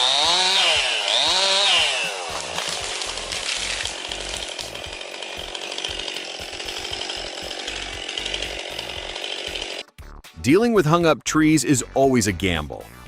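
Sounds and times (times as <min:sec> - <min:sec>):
chainsaw running at high revs: 0:00.0 - 0:09.8.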